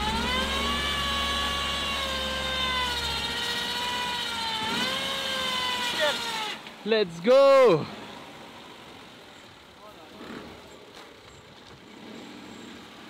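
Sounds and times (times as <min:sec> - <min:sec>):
car engine revving hard: 0:00.0 - 0:06.6
wheels spinning in mud: 0:00.0 - 0:13.0.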